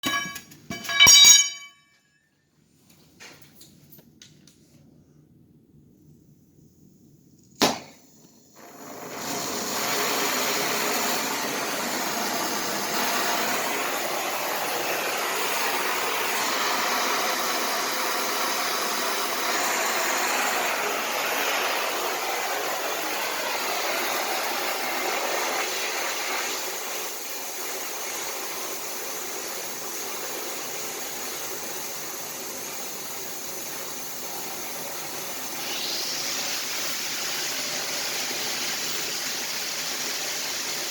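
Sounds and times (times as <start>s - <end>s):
welding arc hissing: 8.6s - 40.9s.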